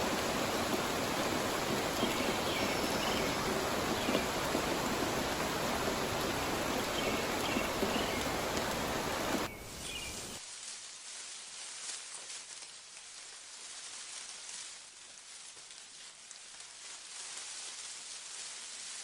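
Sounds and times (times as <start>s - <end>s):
rushing rain or water: 0.0s - 12.6s.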